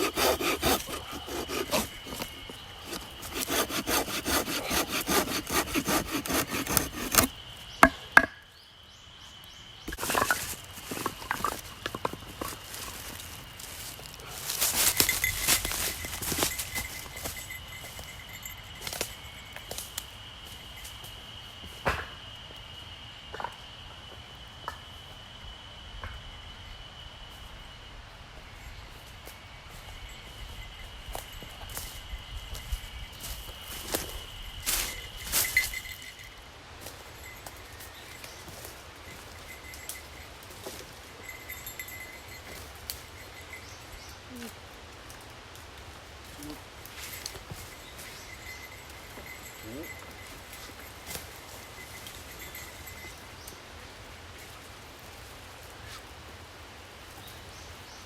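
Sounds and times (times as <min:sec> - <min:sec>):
hand saw cutting wood: 0:00.0 - 0:07.3
rustling: 0:00.0 - 0:07.3, 0:09.9 - 0:18.1
insect droning: 0:00.0 - 0:58.0.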